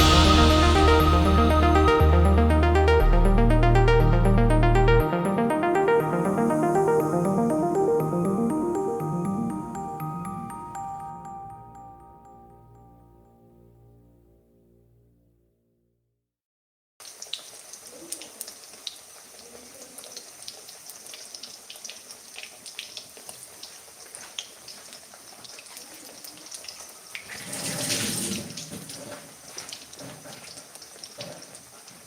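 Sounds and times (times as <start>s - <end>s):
food deep-frying in oil: 17.0s - 32.0s.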